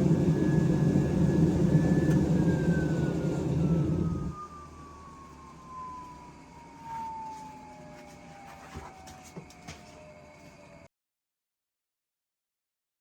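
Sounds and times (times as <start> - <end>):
loud low rumble: 0.0 - 4.3
motor spinning down: 0.0 - 4.9.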